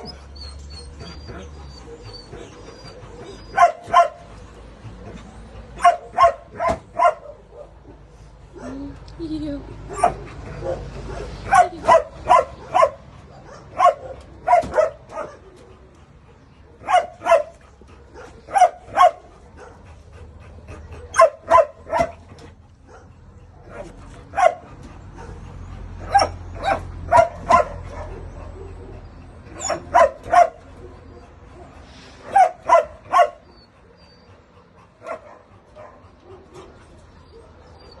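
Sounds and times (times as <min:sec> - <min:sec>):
dog barking: 0:03.5 - 0:04.2, 0:05.8 - 0:07.7, 0:09.9 - 0:15.5, 0:16.8 - 0:19.8, 0:21.1 - 0:22.2, 0:22.9 - 0:25.4, 0:26.0 - 0:29.0, 0:29.6 - 0:31.0, 0:32.3 - 0:33.4, 0:35.0 - 0:36.7.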